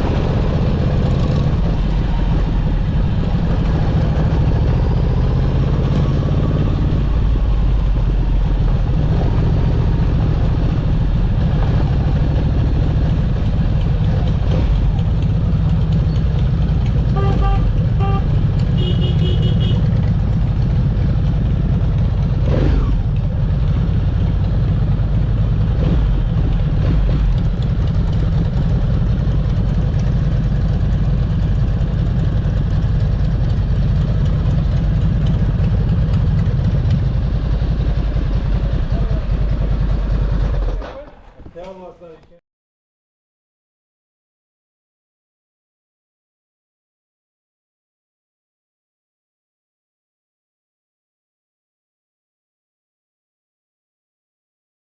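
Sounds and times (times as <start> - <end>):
motorcycle engine running: 0.0 - 41.2
road and wind noise: 0.0 - 42.4.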